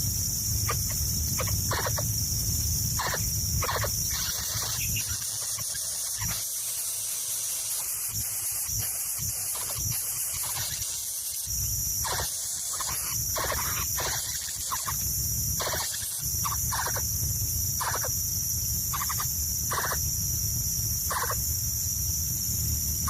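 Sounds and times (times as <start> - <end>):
low rumble: 0.0 - 5.0
steady high hiss: 0.0 - 23.0
short bird calls: 3.0 - 6.5.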